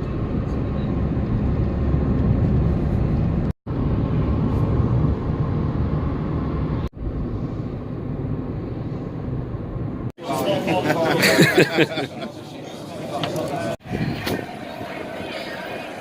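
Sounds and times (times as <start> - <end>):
vehicle interior rumble: 0.0 - 10.2.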